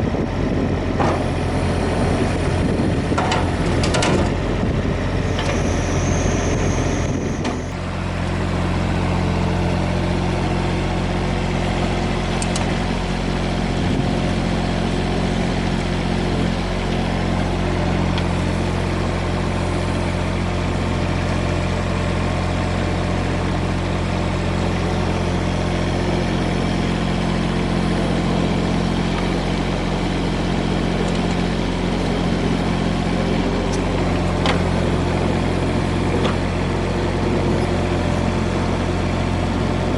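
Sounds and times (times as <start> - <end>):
high whine: 0.0 - 7.9
excavator diesel engine running: 0.0 - 39.9.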